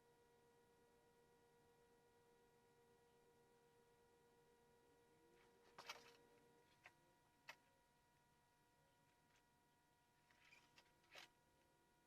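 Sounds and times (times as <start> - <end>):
faint electrical tone: 0.0 - 12.0.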